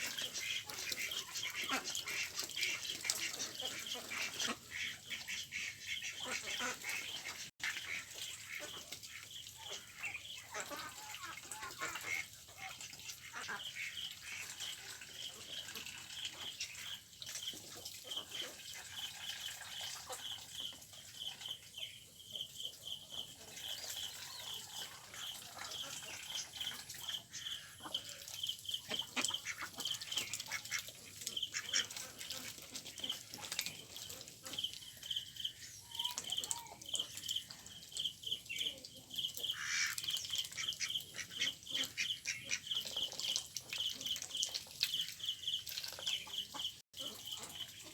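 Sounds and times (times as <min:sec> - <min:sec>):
ducks quacking: 0:00.0 - 0:21.3, 0:22.8 - 0:37.2, 0:38.6 - 0:45.4.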